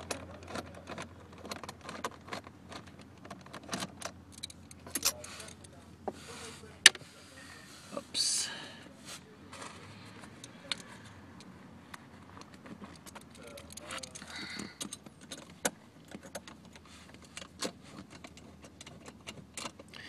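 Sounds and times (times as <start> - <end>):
loose screws rattling: 0.0 - 5.8, 10.3 - 20.0.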